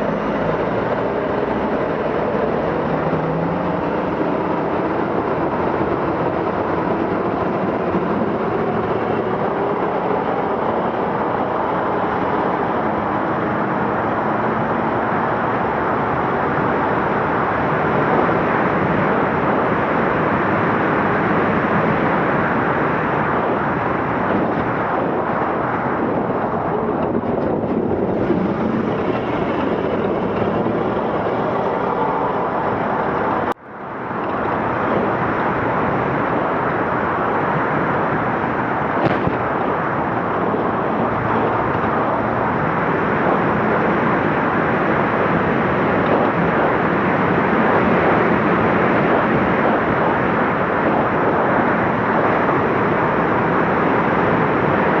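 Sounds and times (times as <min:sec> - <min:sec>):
truck engine running hard: 0:00.0 - 0:55.0
rolling noise: 0:24.2 - 0:49.9.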